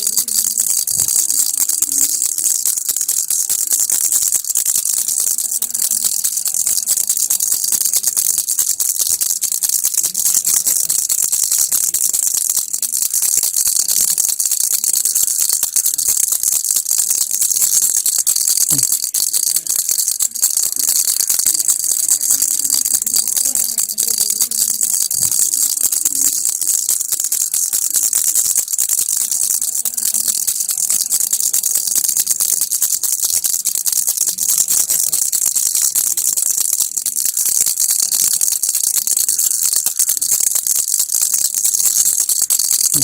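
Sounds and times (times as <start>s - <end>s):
baby rattle shaken: 0.0s - 43.0s.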